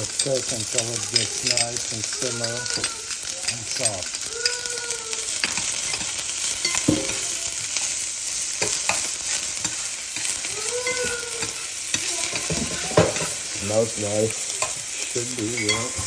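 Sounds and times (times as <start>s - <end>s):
onion sizzling in a pan: 0.0s - 16.0s
utensil knocking in pan: 5.4s - 7.4s, 10.7s - 13.4s.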